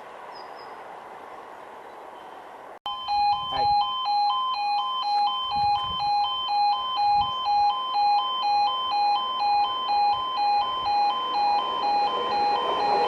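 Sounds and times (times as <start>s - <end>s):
level crossing alarm two-tone: 2.9s - 13.0s.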